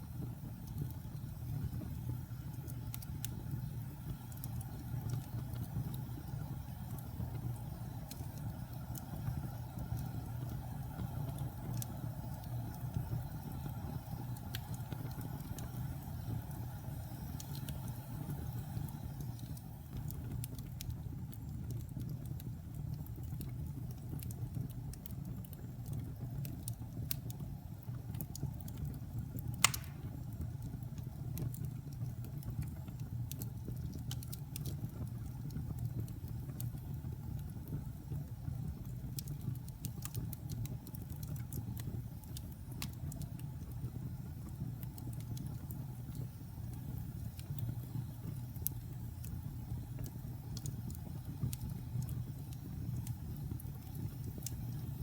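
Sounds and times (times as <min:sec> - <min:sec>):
fire flames rumbling: 0:00.0 - 0:55.0
wood fire crackling: 0:00.0 - 0:55.0
sharp pop of fire: 0:29.6 - 0:30.4.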